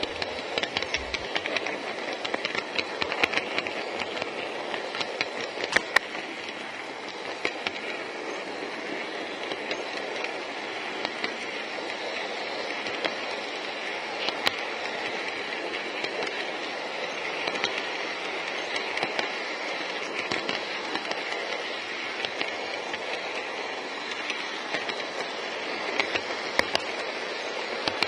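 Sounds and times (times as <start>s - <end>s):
model train motor whirring: 0.0s - 28.0s
wheels clicking over rail joints: 0.0s - 28.0s.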